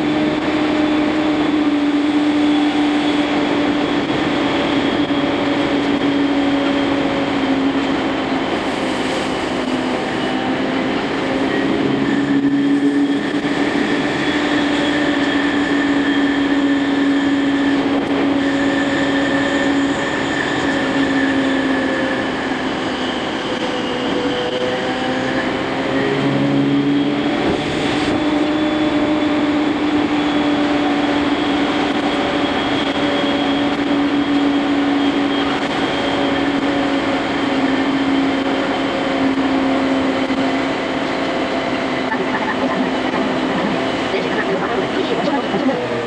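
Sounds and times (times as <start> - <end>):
train motor whine: 0.0 - 46.0
train wheels rumbling on rail: 0.0 - 46.0.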